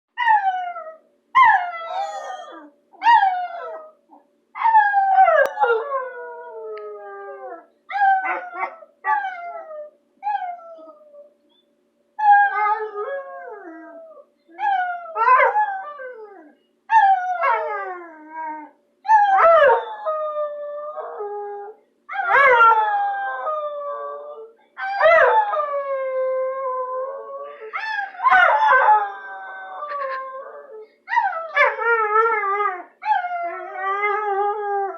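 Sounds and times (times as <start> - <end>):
dog howling: 1.4 - 4.0, 12.2 - 34.9.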